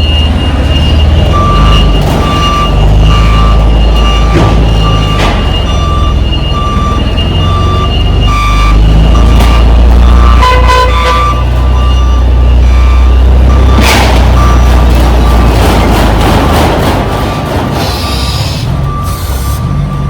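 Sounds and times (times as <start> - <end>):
backup alarm beeping: 0.0 - 15.6, 17.3 - 20.0
diesel truck engine rumbling: 0.0 - 20.0
horn toot: 10.4 - 11.4.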